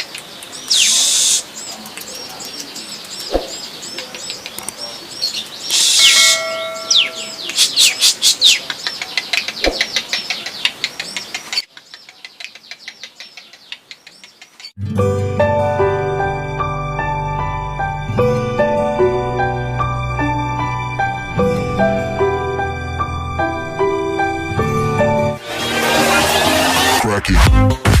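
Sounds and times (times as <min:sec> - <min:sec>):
small birds chirping: 0:00.0 - 0:14.8.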